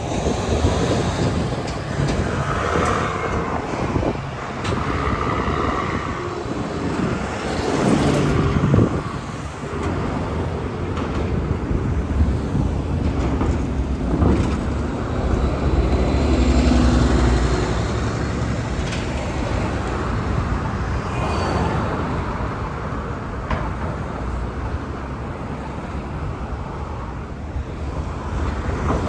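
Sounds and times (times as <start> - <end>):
vehicles passing with engine rumble: 0.0 - 29.0.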